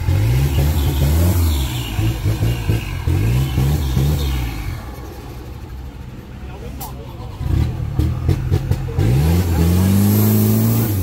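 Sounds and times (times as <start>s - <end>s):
engine revving in bursts: 0.0s - 4.8s, 7.4s - 11.0s.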